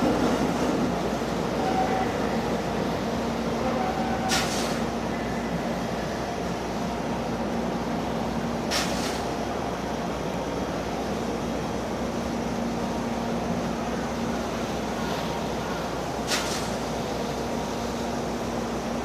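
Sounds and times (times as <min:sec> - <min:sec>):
standing train humming: 0:00.0 - 0:19.0
compressed air hiss: 0:04.3 - 0:04.9, 0:08.7 - 0:09.4, 0:16.2 - 0:16.9.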